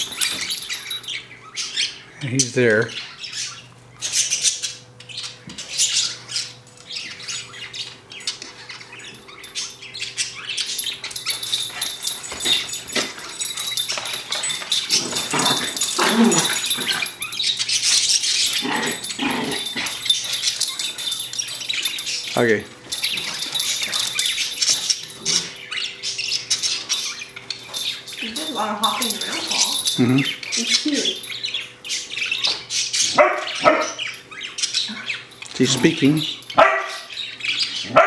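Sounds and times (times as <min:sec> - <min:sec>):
puppies barking and yipping: 0:00.0 - 0:38.0.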